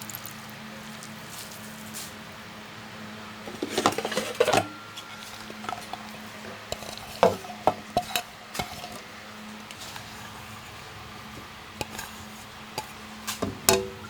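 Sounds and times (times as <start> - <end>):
dishes and utensils clinking: 3.5 - 9.0, 11.8 - 14.0.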